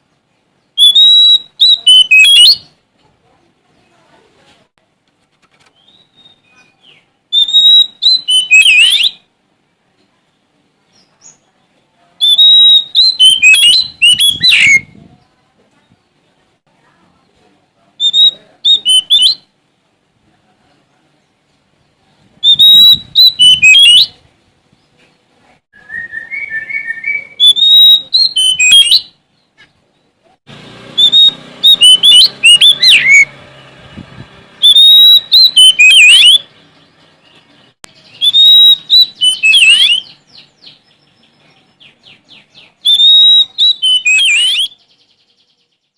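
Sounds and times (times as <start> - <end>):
songbird whistling and chattering: 0.7 - 2.8, 5.7 - 9.3, 12.2 - 15.1, 18.0 - 19.5, 22.4 - 24.2, 25.8 - 29.2, 31.0 - 33.3, 34.6 - 36.5, 37.3 - 45.3.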